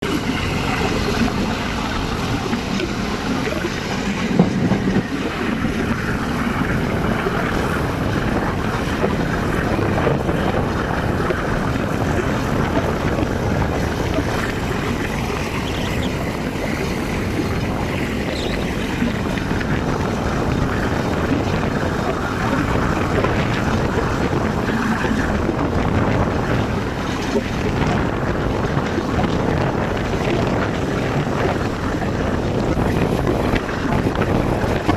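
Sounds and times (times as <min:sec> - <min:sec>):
moving train noise: 0:00.0 - 0:34.9
wind buffeting microphone: 0:00.0 - 0:34.9.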